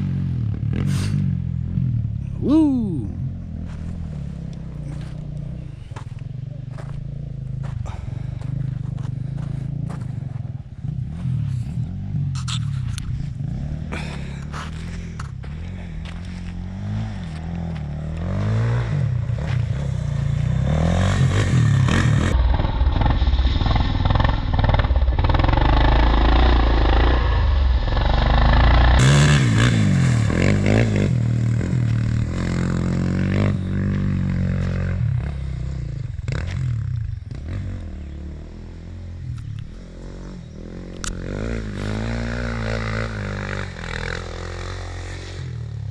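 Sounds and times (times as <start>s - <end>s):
quad engine revving: 0.0s - 45.9s.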